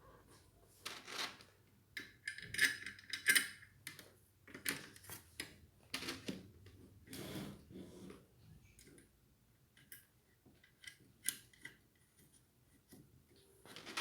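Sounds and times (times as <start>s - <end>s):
small parts clicking and clinking: 2.0s - 5.1s.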